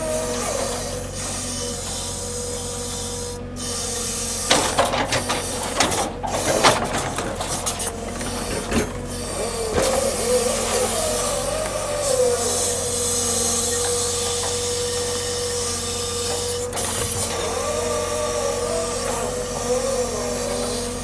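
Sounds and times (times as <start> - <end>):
diesel engine running: 0.0 - 21.0
hydraulic whine: 0.0 - 21.0
logs knocking and scraping: 4.5 - 12.4.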